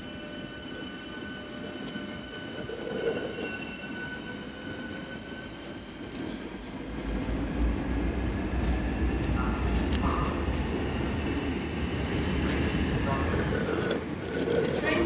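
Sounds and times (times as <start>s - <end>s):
train rumble: 5.5s - 15.0s.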